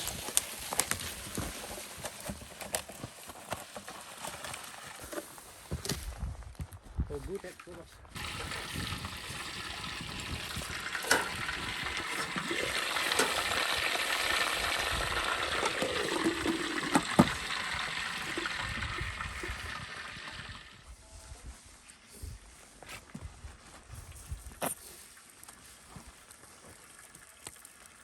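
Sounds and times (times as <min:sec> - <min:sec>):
food sizzling in a pan: 0:08.2 - 0:18.4.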